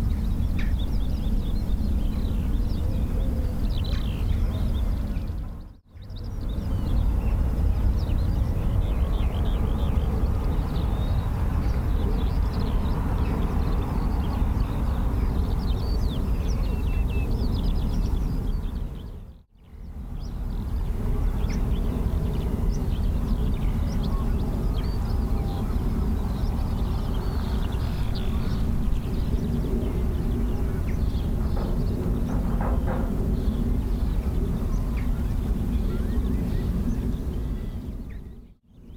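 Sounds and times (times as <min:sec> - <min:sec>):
birds chirping: 0:00.0 - 0:38.9
low rumble: 0:25.2 - 0:38.0.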